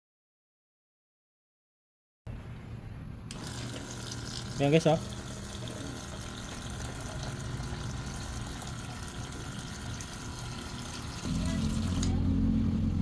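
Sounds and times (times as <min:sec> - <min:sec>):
water running from dispenser: 0:03.3 - 0:12.4
pump humming: 0:03.3 - 0:13.0.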